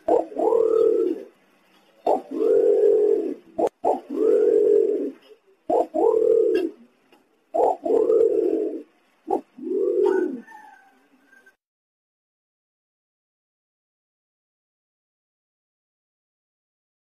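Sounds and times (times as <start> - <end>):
pigeon cooing: 0.0 - 6.9, 7.5 - 11.5.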